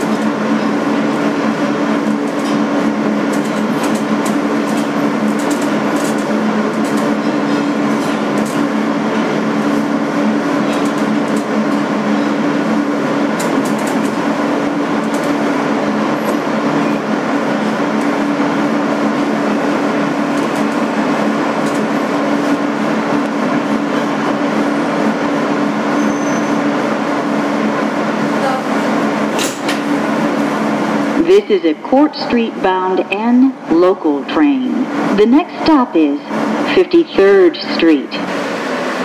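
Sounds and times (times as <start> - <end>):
subway car interior rumble: 0.0 - 39.0.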